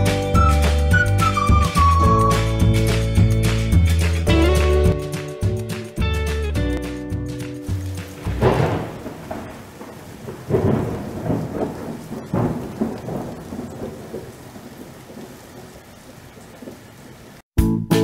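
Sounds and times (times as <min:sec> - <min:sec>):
rain: 0:00.0 - 0:17.5
thunder rumbling: 0:07.7 - 0:17.2.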